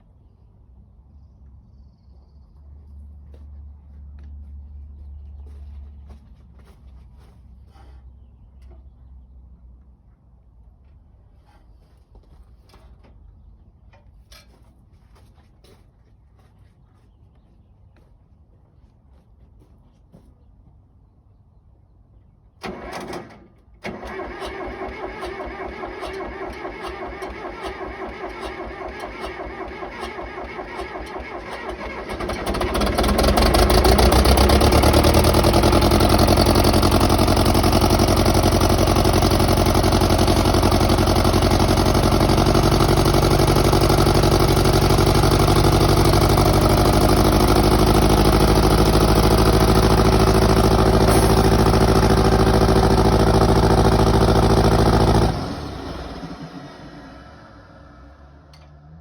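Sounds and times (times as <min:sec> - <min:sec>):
diesel engine cranking: 0:22.6 - 0:59.0
diesel engine running: 0:22.6 - 0:59.0.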